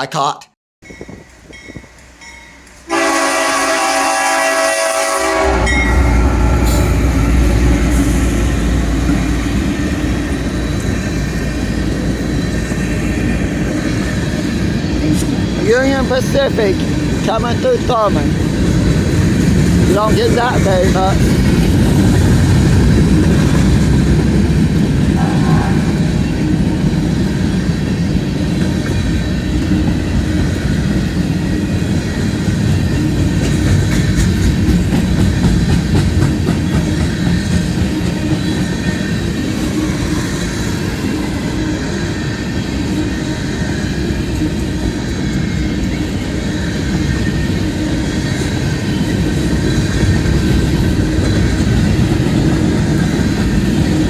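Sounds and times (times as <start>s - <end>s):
train wheels rumbling on rails: 0.8s - 54.0s
clickety-clack over rail joints: 8.9s - 39.8s.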